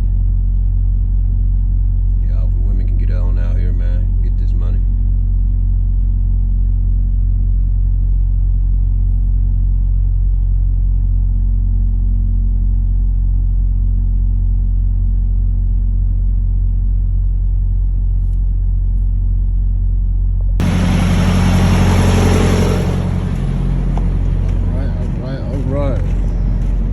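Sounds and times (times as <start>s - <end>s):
truck diesel engine droning: 20.6s - 26.9s.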